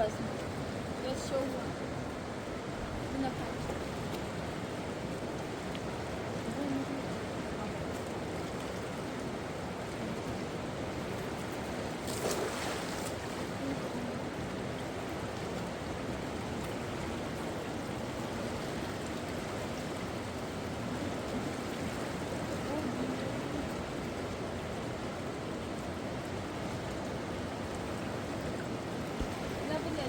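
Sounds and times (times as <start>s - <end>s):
flowing river water: 0.0s - 30.0s
rustle or splash: 3.0s - 24.4s.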